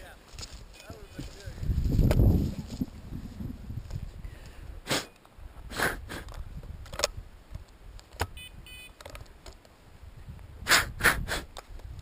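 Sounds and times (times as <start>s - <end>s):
low wind rumble: 0.2s - 8.8s
short electronic beeps: 8.3s - 9.0s.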